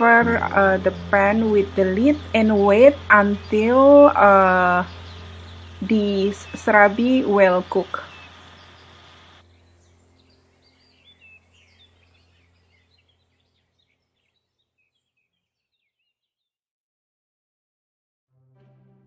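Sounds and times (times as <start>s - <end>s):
low background hum: 0.0s - 13.4s
small birds chirping: 0.0s - 16.5s.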